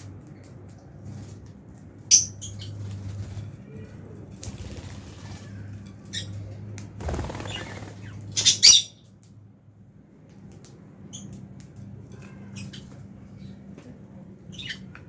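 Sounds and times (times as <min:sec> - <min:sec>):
lovebirds chirping and squawking: 0:02.1 - 0:03.2, 0:04.4 - 0:06.4, 0:07.0 - 0:09.1, 0:12.5 - 0:13.6, 0:14.5 - 0:14.9.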